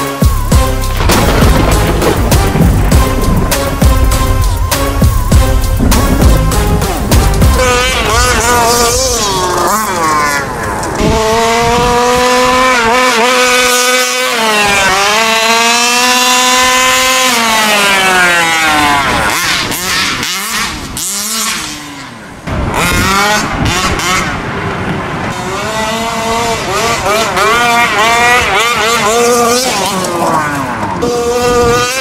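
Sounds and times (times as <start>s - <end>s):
two-stroke engine revving: 0.0s - 32.0s.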